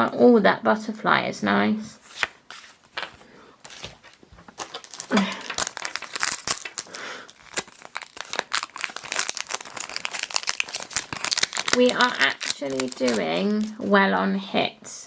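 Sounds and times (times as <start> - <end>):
trading cards being handled: 2.0 - 14.0
foil wrapper crinkling: 2.9 - 14.0.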